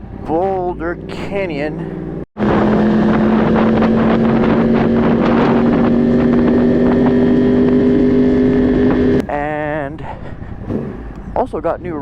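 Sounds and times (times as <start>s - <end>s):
motorcycle engine running: 0.0s - 9.8s
wind rushing over microphone: 0.9s - 9.3s.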